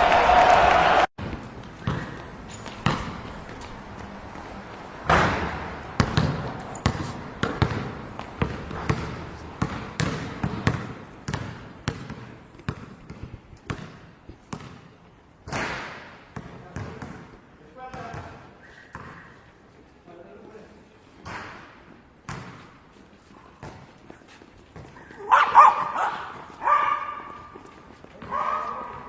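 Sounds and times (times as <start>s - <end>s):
basketball bouncing on court: 1.2s - 19.3s, 22.2s - 22.7s, 23.6s - 23.9s, 28.2s - 29.0s.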